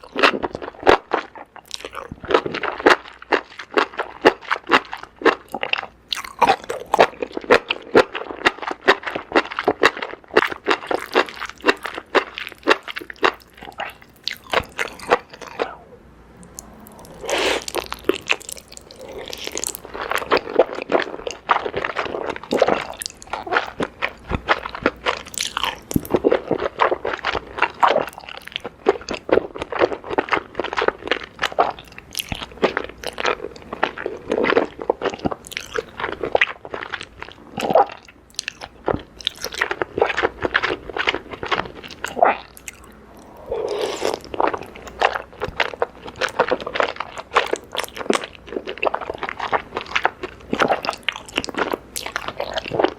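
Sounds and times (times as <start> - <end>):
person chewing food: 0.0 - 52.9.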